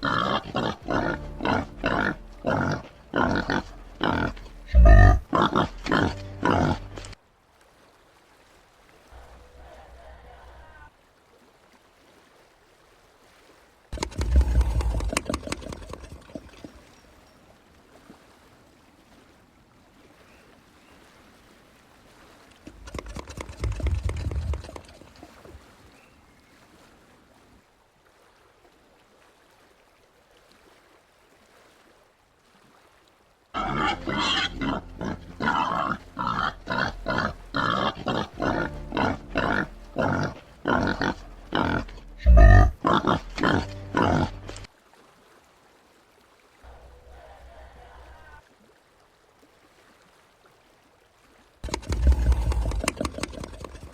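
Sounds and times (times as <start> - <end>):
peccary grunting: 0.0 - 7.2, 14.0 - 16.0, 33.6 - 44.7, 51.6 - 53.6.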